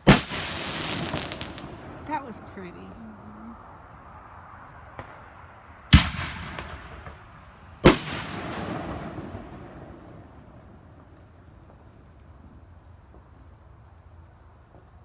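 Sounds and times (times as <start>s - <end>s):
firework shells bursting: 0.0s - 3.6s, 5.9s - 10.0s.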